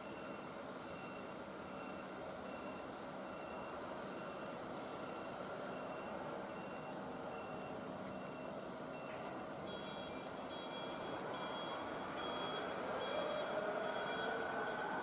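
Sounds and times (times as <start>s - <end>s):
electronic warning beeps: 0.0s - 14.9s
train rumbling: 7.9s - 15.0s.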